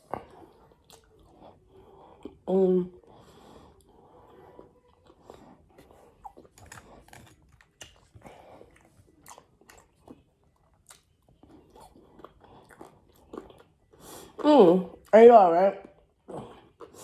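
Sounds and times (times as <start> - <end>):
person chewing crunchy food: 0.0 - 2.4, 3.0 - 15.2, 15.8 - 17.0.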